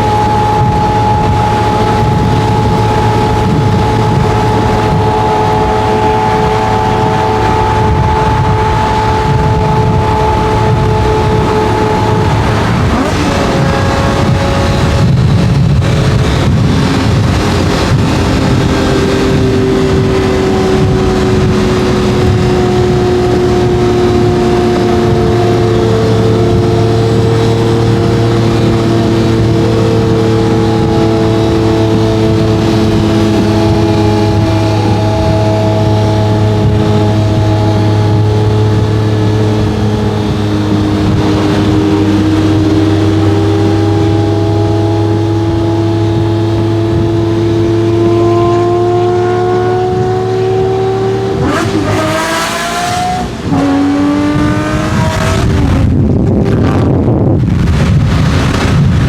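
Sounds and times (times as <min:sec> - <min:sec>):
sports car engine running: 0:00.0 - 0:59.0.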